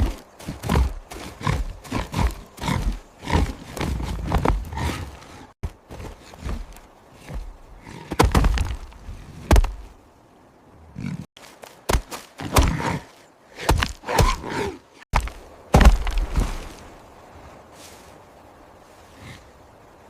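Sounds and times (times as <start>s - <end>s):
heavy thuds: 15.1s - 16.8s.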